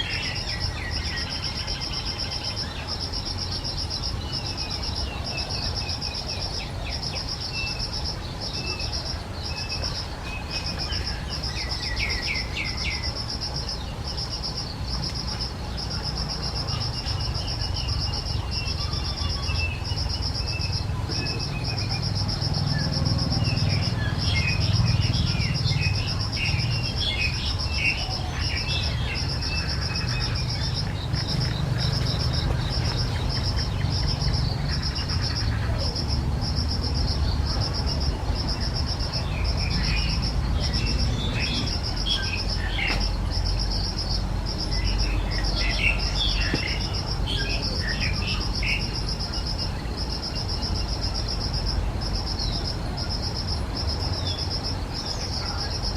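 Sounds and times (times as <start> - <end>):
cricket trilling: 0.0 - 55.9
small birds chirping: 0.0 - 55.9.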